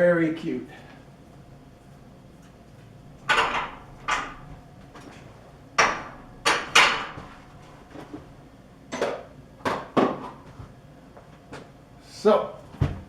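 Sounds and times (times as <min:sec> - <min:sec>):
hard objects knocking on metal: 0:03.2 - 0:04.6, 0:05.8 - 0:07.8.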